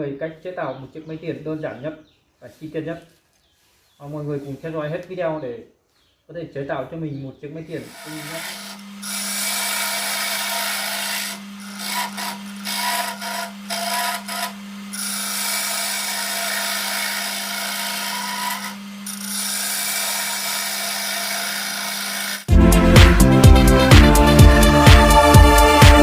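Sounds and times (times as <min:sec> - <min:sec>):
tool scraping spinning wood: 0:07.8 - 0:22.5
lathe motor humming: 0:07.9 - 0:22.6
loud music: 0:22.5 - 0:26.0.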